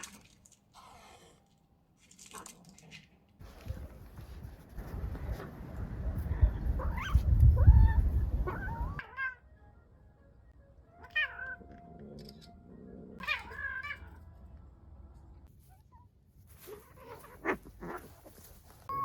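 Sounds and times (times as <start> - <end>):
cats yowling and meowing: 6.7 - 9.4, 11.0 - 11.8, 13.1 - 14.2.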